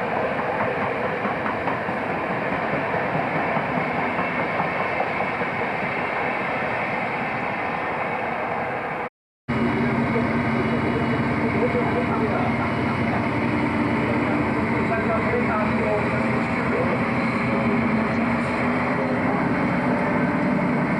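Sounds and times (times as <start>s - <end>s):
train running: 0.0s - 20.9s.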